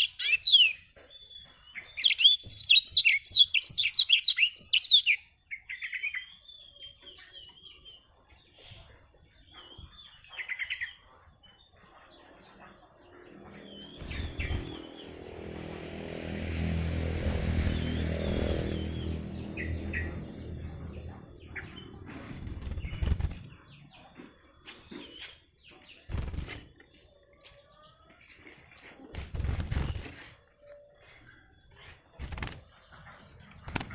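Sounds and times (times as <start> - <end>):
bird twittering chirps and trills: 0.0 - 33.9
low rumble with hum: 13.1 - 23.8.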